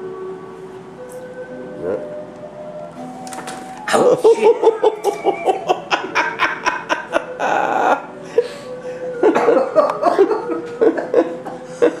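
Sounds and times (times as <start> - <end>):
man laughing: 3.9 - 8.5, 9.2 - 12.0.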